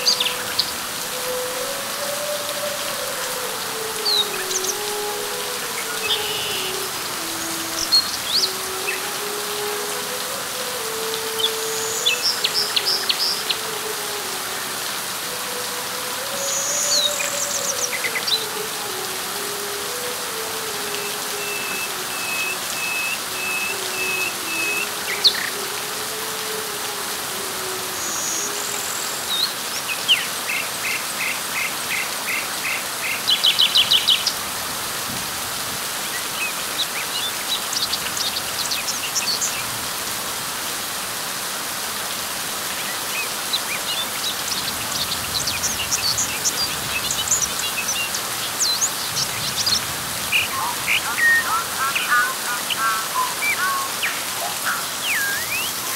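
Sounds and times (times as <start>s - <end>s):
rain falling on leaves: 0.0s - 55.9s
small birds chirping: 43.5s - 55.9s.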